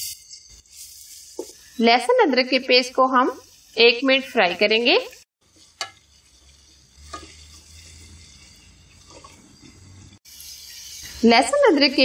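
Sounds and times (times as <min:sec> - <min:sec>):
paste sizzling in a pot: 0:00.0 - 0:12.0
spatula scraping a pot: 0:05.4 - 0:11.0.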